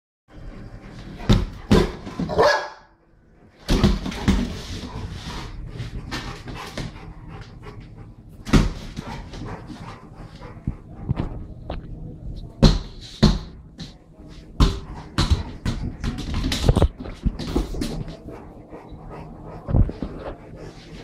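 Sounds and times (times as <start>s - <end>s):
dog barking: 2.3s - 3.0s.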